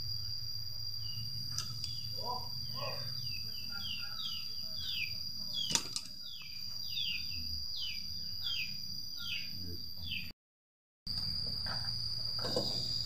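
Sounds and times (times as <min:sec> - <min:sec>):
high insect whine: 0:00.0 - 0:10.3, 0:11.1 - 0:13.0
bird falling chirp: 0:01.1 - 0:09.5.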